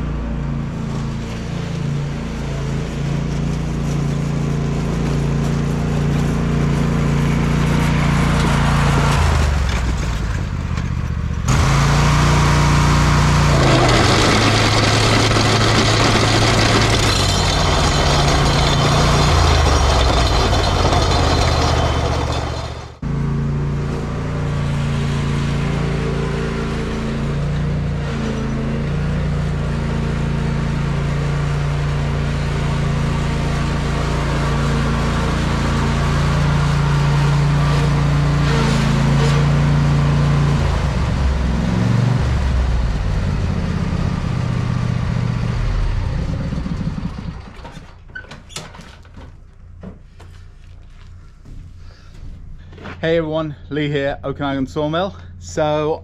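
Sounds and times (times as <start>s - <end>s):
small engine running: 0.6s - 48.0s.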